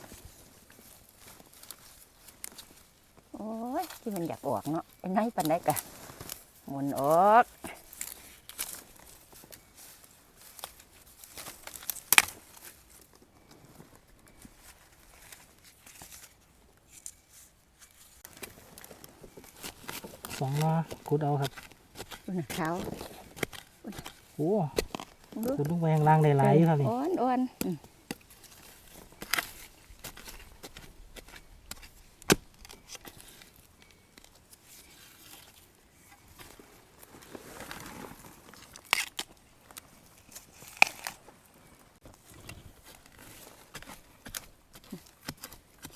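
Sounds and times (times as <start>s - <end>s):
dry bamboo litter rustling: 0.0s - 45.9s
bamboo shoot cracking: 0.8s - 13.5s, 17.8s - 36.6s, 37.6s - 41.5s, 42.2s - 45.9s
digging knocks and scrapes: 14.5s - 41.3s, 42.0s - 45.9s.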